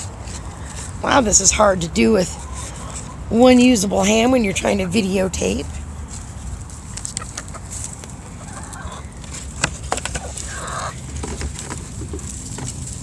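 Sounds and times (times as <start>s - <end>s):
hens making short calls: 7.1s - 9.2s, 10.0s - 11.1s.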